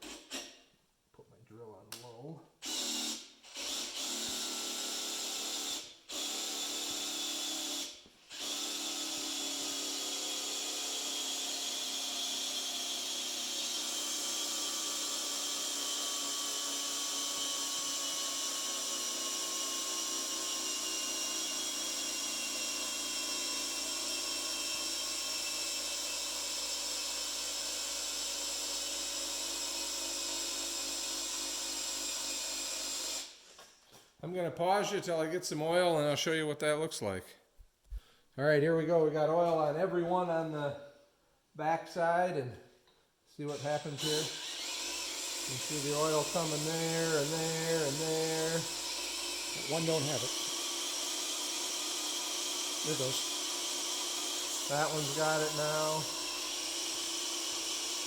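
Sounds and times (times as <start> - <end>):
electric drill motor whine: 2.6 - 33.4, 43.5 - 58.0.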